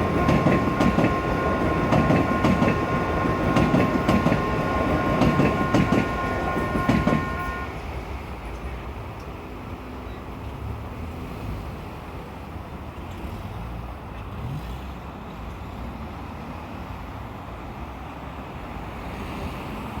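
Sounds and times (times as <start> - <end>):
vehicle engines rumbling: 10.3 - 18.0.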